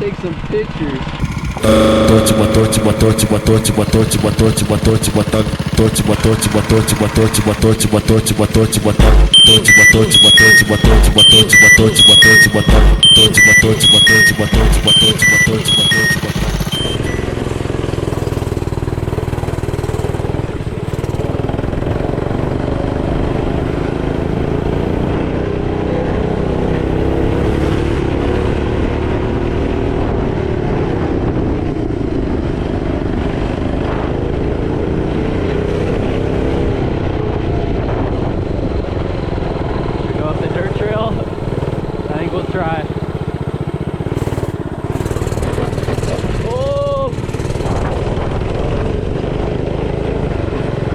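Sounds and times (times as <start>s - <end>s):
small engine running: 0.2s - 25.1s, 41.5s - 48.4s.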